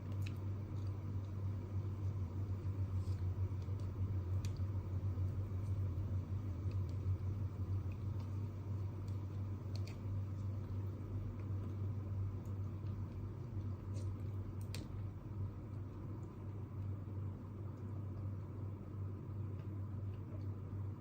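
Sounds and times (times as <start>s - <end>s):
low room hum: 0.0s - 21.0s
faint small clicks: 9.0s - 10.5s.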